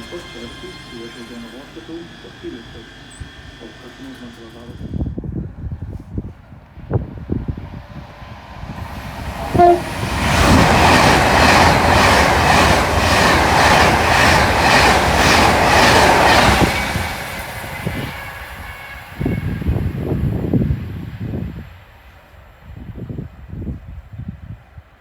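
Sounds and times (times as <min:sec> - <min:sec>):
train passing at speed: 0:00.0 - 0:24.9
train horn blast: 0:09.5 - 0:10.6, 0:17.7 - 0:20.2.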